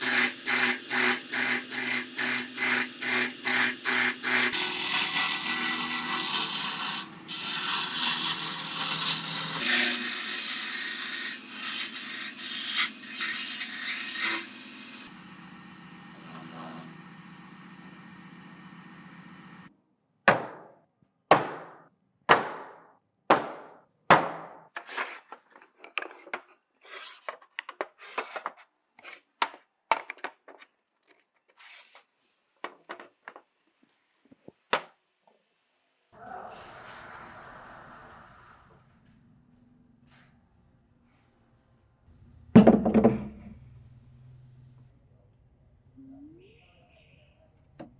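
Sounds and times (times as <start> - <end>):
power tool working wood: 0.0 - 19.7
sharp knocks on wood: 20.3 - 24.6.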